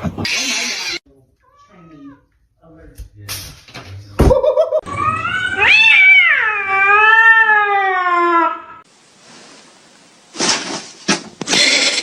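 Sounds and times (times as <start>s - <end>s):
cat meowing: 0.3s - 2.3s, 4.9s - 8.8s.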